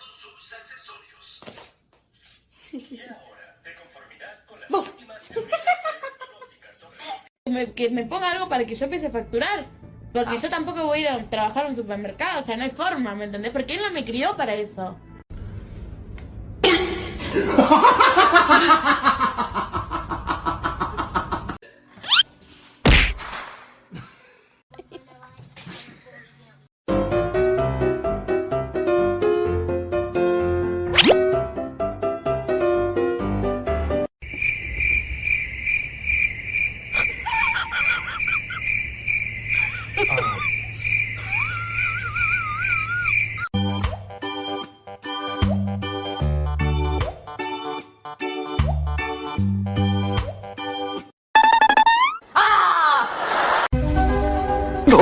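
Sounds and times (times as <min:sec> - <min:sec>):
cricket chirping: 0:34.2 - 0:43.6
warbling bird calls: 0:34.4 - 0:43.5
person laughing hard: 0:37.2 - 0:38.7, 0:39.6 - 0:40.6, 0:41.2 - 0:43.2, 0:52.3 - 0:53.7.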